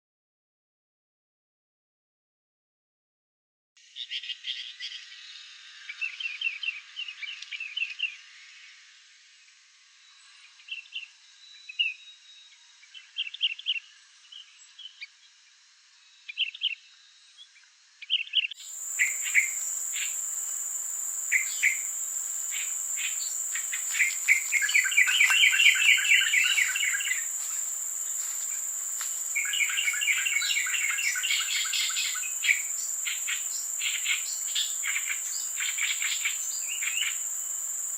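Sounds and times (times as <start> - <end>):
high-pitched insect drone: 4.6 - 37.9
birds chirping and trilling: 18.0 - 37.9.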